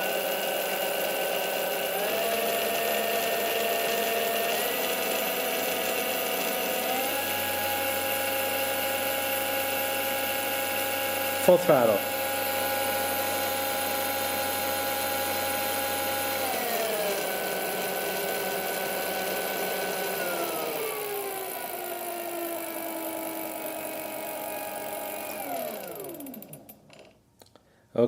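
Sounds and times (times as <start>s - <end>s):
electric motor gear whine: 0.0s - 26.8s.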